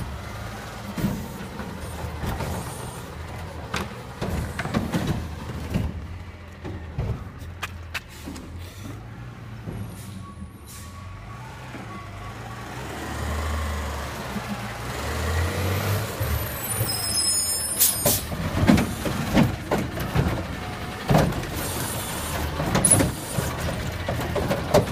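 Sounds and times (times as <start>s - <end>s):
garbage truck diesel engine: 0.0s - 24.9s
air brakes hiss: 9.9s - 11.1s, 16.7s - 18.3s.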